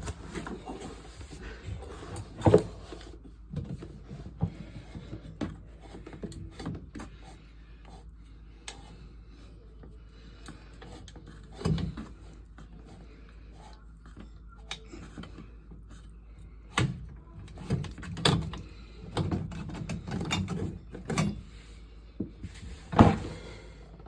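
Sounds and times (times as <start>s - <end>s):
knocks and clicks of handling: 16.7s - 21.5s.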